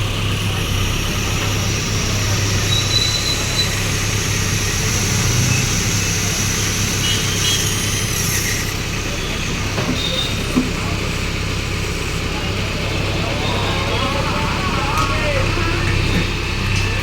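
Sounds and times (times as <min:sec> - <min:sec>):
mechanical noise: 0:00.0 - 0:11.5
diesel engine hum: 0:00.0 - 0:17.0.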